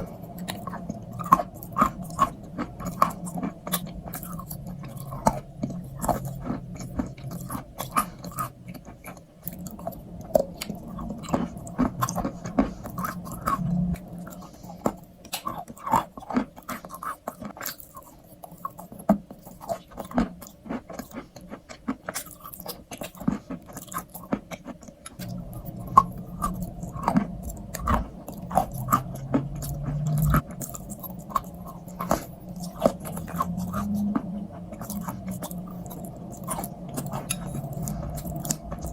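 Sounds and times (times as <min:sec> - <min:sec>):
crunchy chewing: 0:00.0 - 0:38.9
wet mouth sounds: 0:22.1 - 0:38.9.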